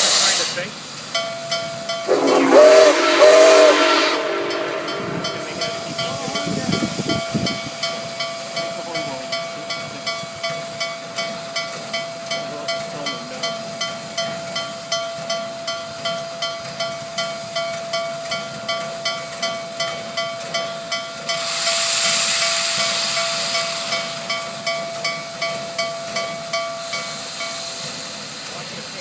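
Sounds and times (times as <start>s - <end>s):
steam hissing: 0.0s - 29.0s
locomotive bell ringing: 1.1s - 27.9s
steam locomotive whistle blasts: 2.0s - 7.2s, 21.3s - 24.6s.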